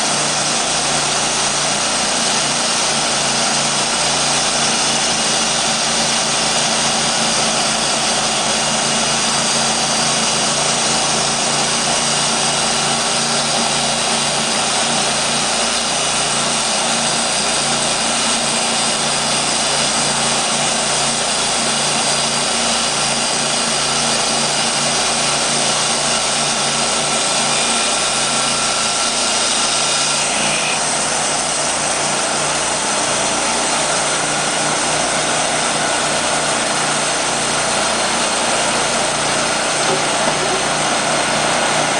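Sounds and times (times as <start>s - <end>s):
band sawmill engine drone: 0.0s - 41.9s.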